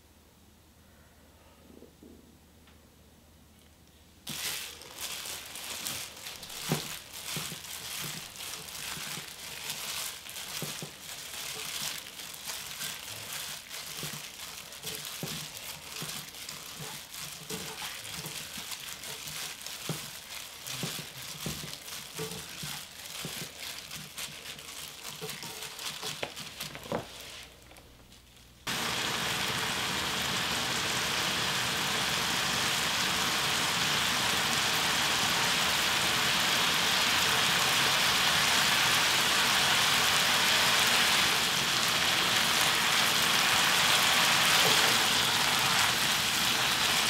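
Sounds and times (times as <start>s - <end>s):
plastic glove crinkling: 4.2s - 29.2s, 36.9s - 47.0s.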